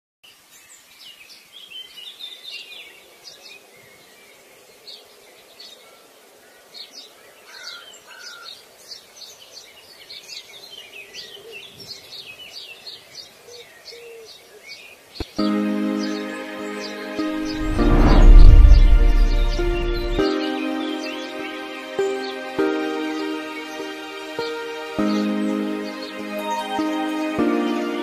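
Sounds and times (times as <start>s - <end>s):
faint steady hiss: 0.2s - 7.4s
small birds chirping: 0.3s - 17.4s, 19.3s - 28.0s.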